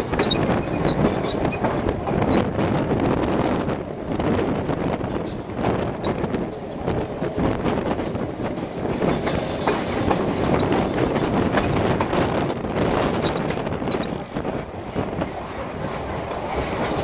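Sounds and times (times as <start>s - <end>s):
wheels clattering over rail joints: 0.0s - 2.6s, 4.9s - 17.0s.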